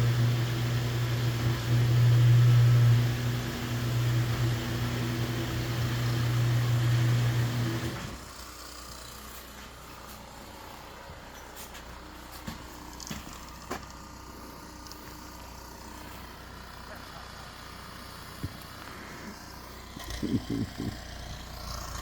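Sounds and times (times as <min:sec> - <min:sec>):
electric motor humming: 0:00.0 - 0:22.0.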